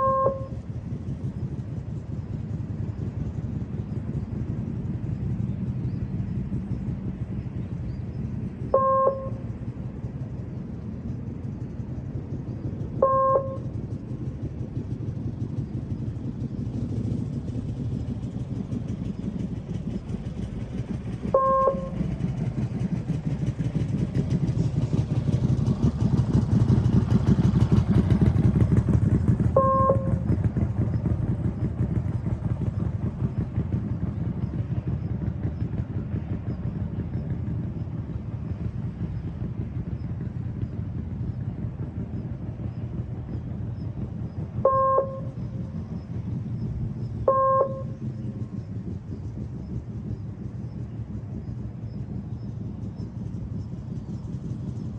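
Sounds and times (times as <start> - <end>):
motorcycle engine running: 0.0 - 54.9
short pitched beeps: 47.3 - 47.8.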